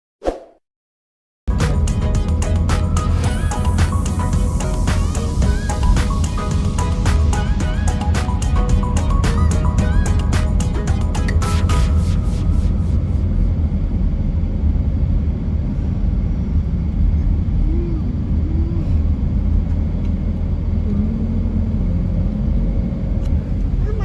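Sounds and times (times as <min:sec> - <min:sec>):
low rumble: 0:01.5 - 0:23.9
faint voice: 0:17.6 - 0:19.1, 0:23.6 - 0:24.0.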